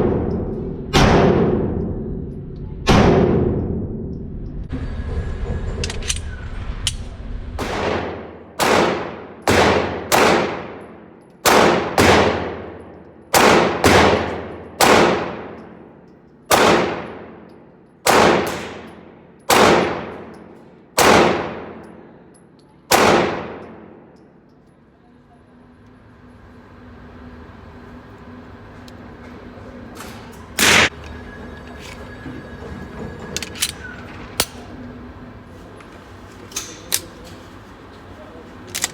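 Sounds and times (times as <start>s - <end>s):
pistol shots echoing indoors: 0.0s - 4.1s, 7.6s - 24.7s, 30.6s - 30.9s.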